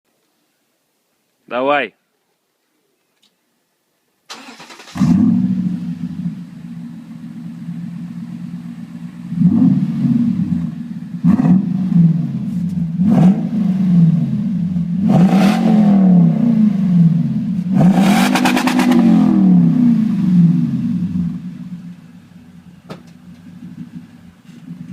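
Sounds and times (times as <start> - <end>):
engine cranking: 4.3 - 5.0
truck engine idling and revving: 4.5 - 24.9.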